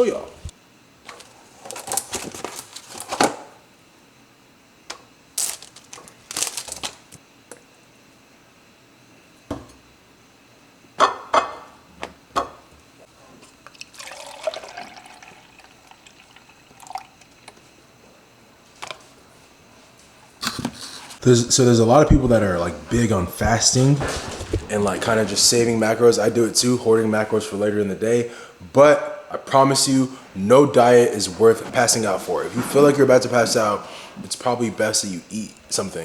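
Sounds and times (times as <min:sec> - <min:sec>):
packaging rustling: 0:01.1 - 0:03.4, 0:05.4 - 0:07.2, 0:22.2 - 0:25.5
liquid pouring: 0:13.7 - 0:17.6.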